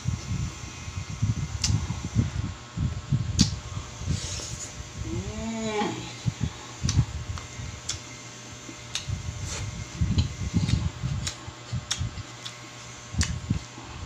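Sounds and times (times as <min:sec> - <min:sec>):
lip-smacks: 0:01.6 - 0:01.8, 0:03.3 - 0:03.6, 0:06.8 - 0:08.1, 0:08.9 - 0:09.2, 0:10.7 - 0:12.6, 0:13.2 - 0:13.4
person humming: 0:05.0 - 0:06.6
person chewing: 0:10.2 - 0:12.6.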